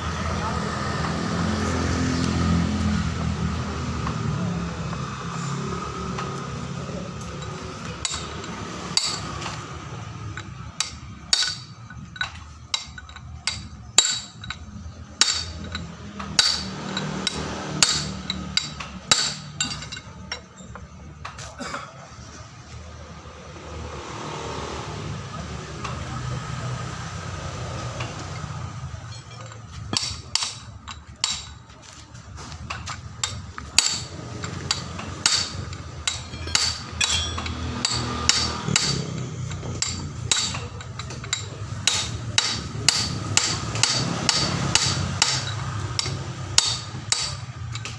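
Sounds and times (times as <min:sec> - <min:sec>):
hammer clanking on steel: 0:07.1 - 0:21.4, 0:27.9 - 0:47.9.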